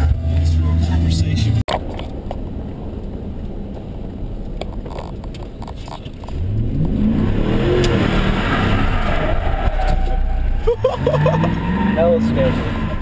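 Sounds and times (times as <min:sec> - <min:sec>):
pickup engine revving hard: 0:06.4 - 0:13.0.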